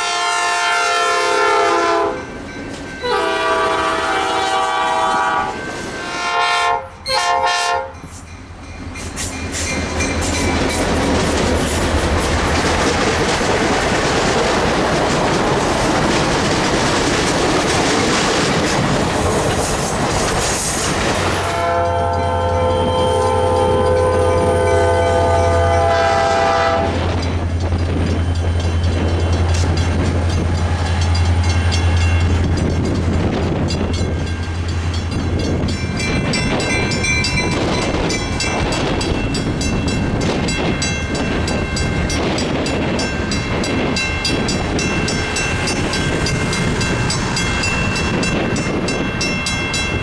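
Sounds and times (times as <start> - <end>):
train horn chord: 0.0 - 2.2, 3.0 - 8.0, 21.5 - 27.1
train engine hum: 0.0 - 50.0
train rumble and rail clatter: 0.0 - 50.0.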